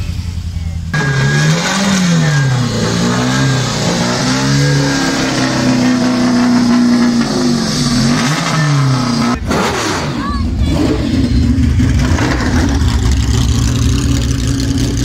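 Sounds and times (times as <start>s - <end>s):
race car engine revving: 0.0s - 15.0s.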